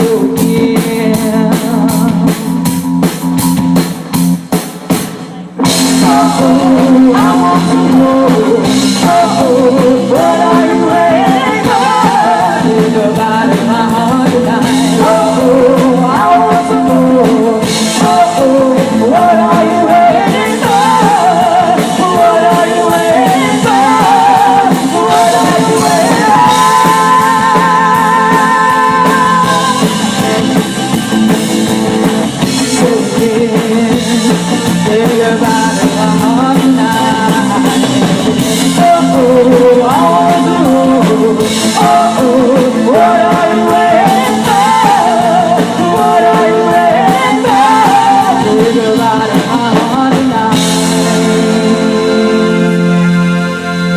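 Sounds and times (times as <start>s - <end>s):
drums: 0.0s - 53.9s
guitar: 0.0s - 53.9s
wavering lead melody: 50.5s - 53.9s.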